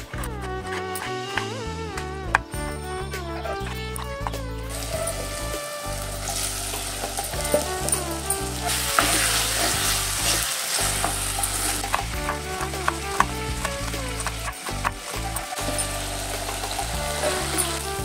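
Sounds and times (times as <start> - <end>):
background music: 0.0 - 18.0
onions and tomatoes sizzling in oil: 4.7 - 18.0.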